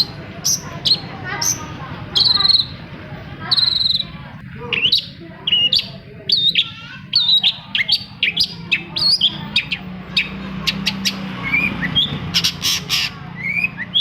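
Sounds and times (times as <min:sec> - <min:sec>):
steady low hum: 0:00.0 - 0:14.0
bird singing chirps and whistles: 0:02.2 - 0:02.8, 0:03.5 - 0:14.0.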